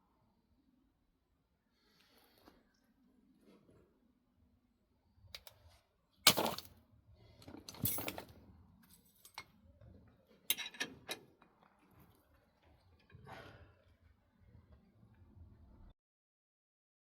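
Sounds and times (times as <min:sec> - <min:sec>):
metal clicks and clinks: 0:07.4 - 0:08.3, 0:10.5 - 0:11.6
metal parts rattling: 0:07.4 - 0:08.3, 0:10.5 - 0:11.2.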